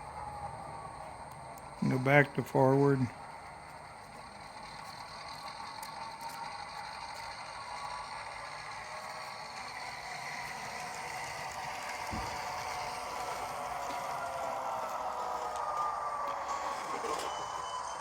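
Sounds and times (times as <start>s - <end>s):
diesel engine sound through small speaker: 0.0s - 18.0s
model motor and gears whirring: 0.0s - 18.0s.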